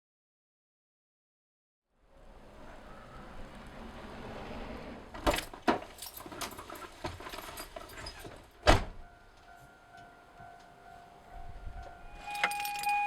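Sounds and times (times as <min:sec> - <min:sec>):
light jingling: 0:05.4 - 0:08.5, 0:12.2 - 0:13.0.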